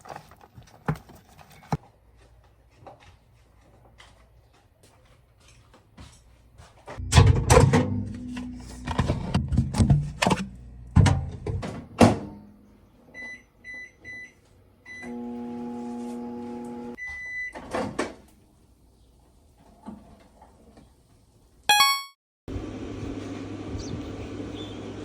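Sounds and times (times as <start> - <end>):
long microwave beep: 13.2 - 15.2, 17.0 - 17.6, 21.7 - 22.2
microwave oven humming: 14.9 - 17.0, 22.5 - 25.0
microwave keypad beeping: 21.7 - 22.2.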